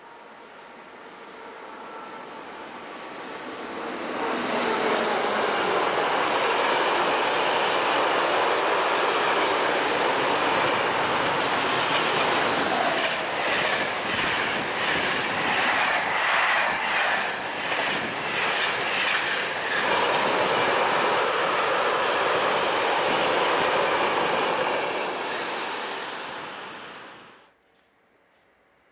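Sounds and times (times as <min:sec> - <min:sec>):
train passing at speed: 0:00.0 - 0:27.5
wheels clacking over rail joints: 0:04.3 - 0:26.4.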